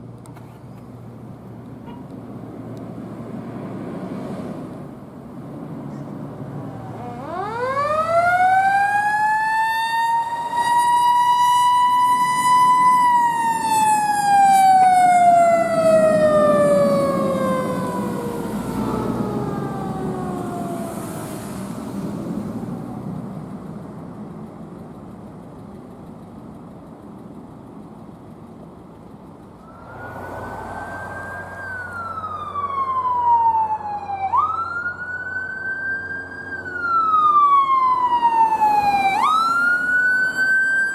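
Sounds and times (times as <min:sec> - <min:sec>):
truck engine rumbling: 0:00.0 - 0:40.9
fire truck siren wailing: 0:06.4 - 0:22.8, 0:29.6 - 0:40.9.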